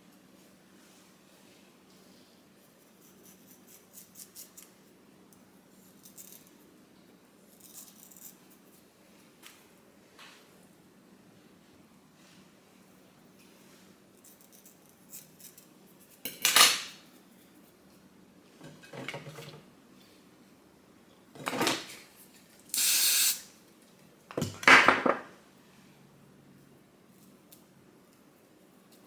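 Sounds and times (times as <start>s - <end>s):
objects clattering and rustling: 18.5s - 19.7s, 21.3s - 22.6s, 23.9s - 25.4s.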